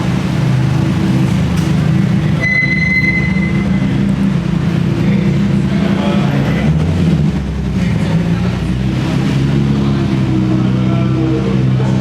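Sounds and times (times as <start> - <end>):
car engines rumbling: 0.0 - 12.0
high squeal: 2.4 - 4.0.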